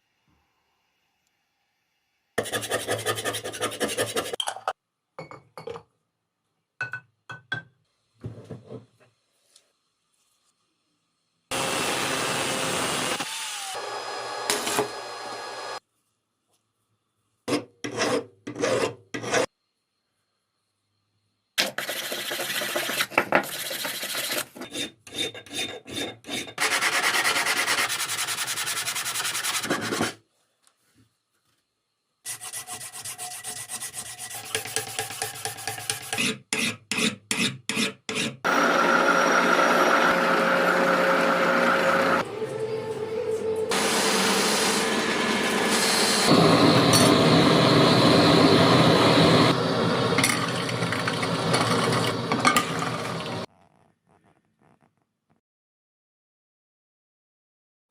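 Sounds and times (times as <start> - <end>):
filing and sanding steel: 2.4 - 4.4, 17.5 - 19.5, 21.6 - 30.2, 32.3 - 38.5.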